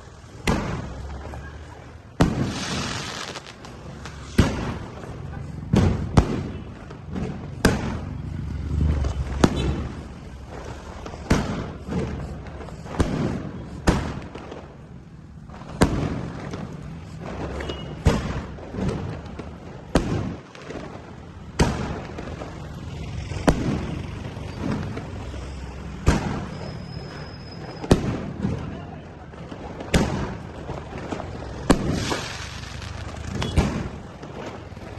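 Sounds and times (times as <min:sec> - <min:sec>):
fireworks bangs: 0:00.0 - 0:34.9
fireworks crackling and hiss: 0:00.0 - 0:34.9.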